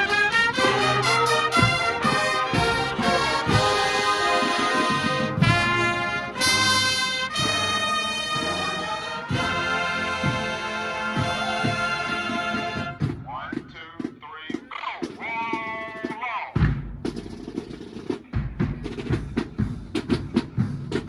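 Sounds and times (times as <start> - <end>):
brass playing held chords: 0.0 - 13.1
drum hits: 11.2 - 21.0.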